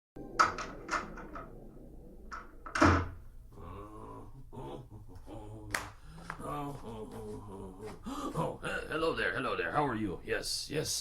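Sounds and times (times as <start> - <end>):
door opening and closing: 0.2 - 3.4.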